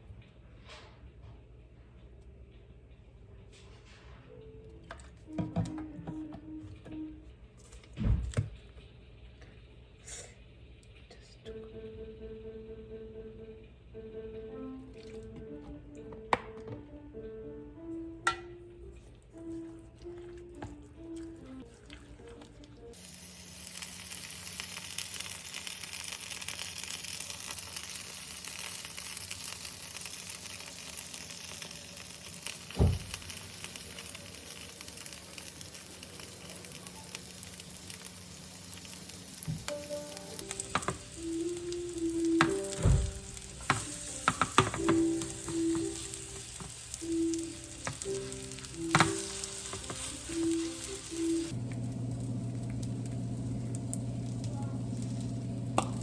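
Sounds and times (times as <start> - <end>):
food sizzling in oil: 22.9 - 56.0.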